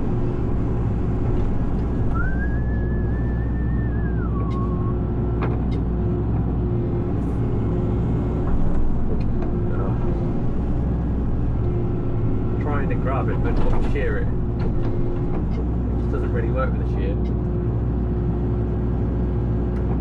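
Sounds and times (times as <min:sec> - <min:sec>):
excavator diesel engine running: 0:00.0 - 0:20.0
hydraulic whine: 0:01.7 - 0:05.6.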